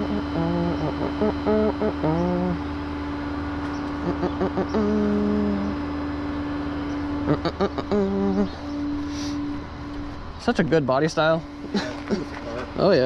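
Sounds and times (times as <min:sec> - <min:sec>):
short pitched sounds: 0:00.0 - 0:02.9, 0:03.6 - 0:10.1
constant hum: 0:00.0 - 0:13.0
vehicle engine rumbling: 0:00.0 - 0:13.0.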